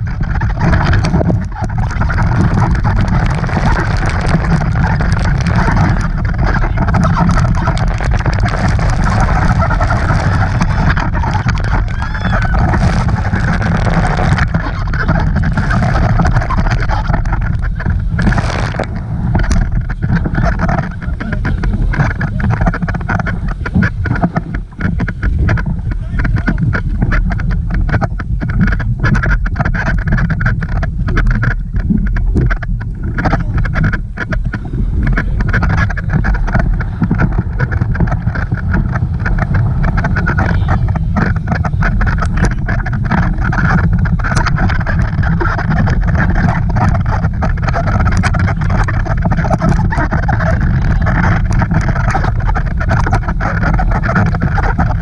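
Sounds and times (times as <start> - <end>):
motorboat running: 0.0 - 55.0
wind buffeting microphone: 0.0 - 55.0
voices calling out: 9.7 - 19.0, 19.6 - 24.1.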